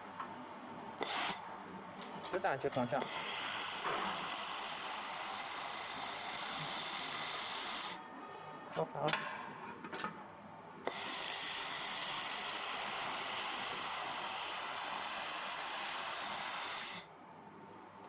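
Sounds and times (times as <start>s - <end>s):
laser welder hiss and whine: 1.0s - 1.4s, 3.0s - 8.0s, 10.9s - 17.1s.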